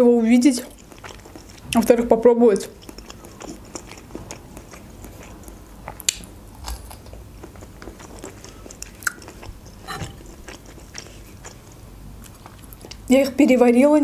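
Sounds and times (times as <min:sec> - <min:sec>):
wet mouth clicks chewing: 0:02.6 - 0:13.0.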